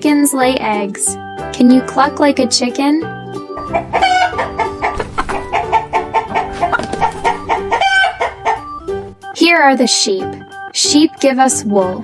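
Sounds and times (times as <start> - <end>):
light children's music: 0.0 - 12.0
chickens clucking: 3.6 - 9.2.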